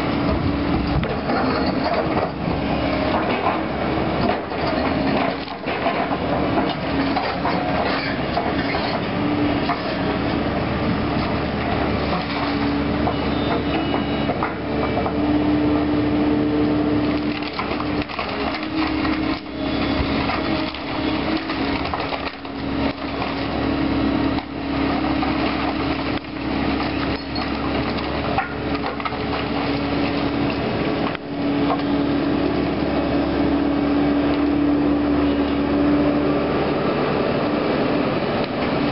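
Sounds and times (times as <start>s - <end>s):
excavator engine drone: 0.0s - 38.9s
wood cracking and splintering: 17.0s - 31.9s.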